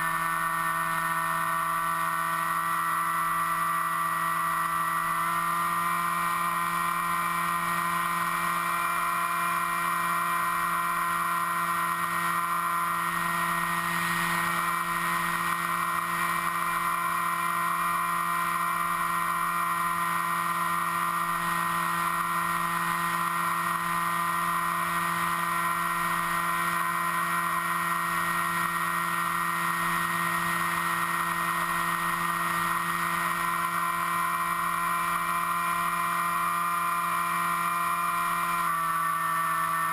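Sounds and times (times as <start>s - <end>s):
model aircraft motor whine: 0.0s - 39.9s.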